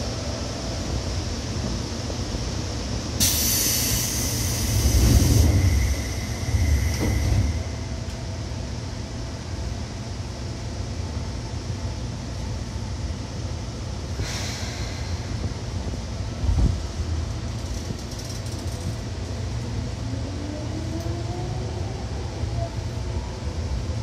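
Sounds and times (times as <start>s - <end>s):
train wheels rumbling on rail: 0.0s - 24.0s
rush of hiss: 3.2s - 7.7s, 14.2s - 15.4s.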